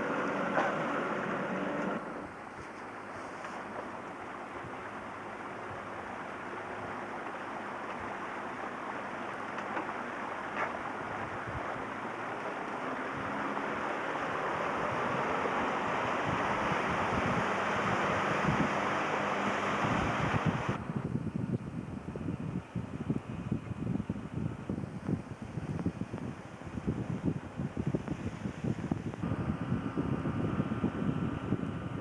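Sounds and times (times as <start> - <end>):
wind: 0.0 - 32.0
water rushing: 3.8 - 20.9
faint motor hum: 10.8 - 32.0.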